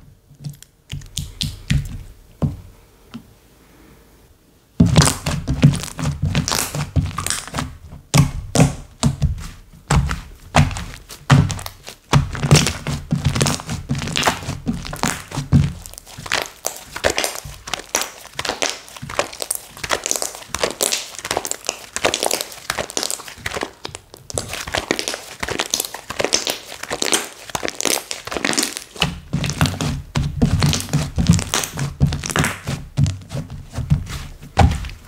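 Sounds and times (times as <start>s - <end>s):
slime squeezed wet pops and crackles: 0.9s - 1.8s, 10.6s - 32.7s.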